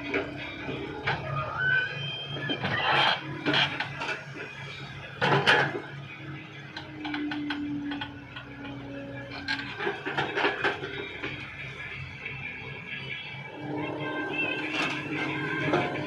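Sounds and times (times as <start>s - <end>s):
excavator engine running: 0.0s - 16.0s
steady tone: 13.3s - 16.0s.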